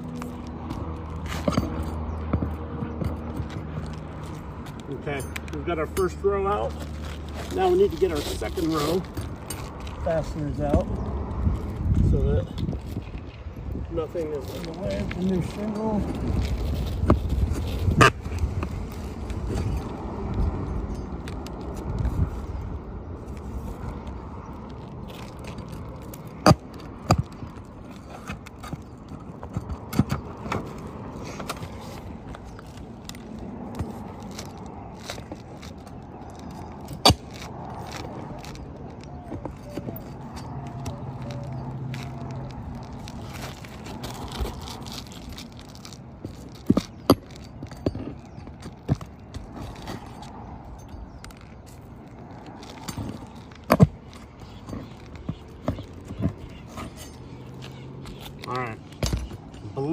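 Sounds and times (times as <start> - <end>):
shingles scraping and crackling: 0.0 - 59.8.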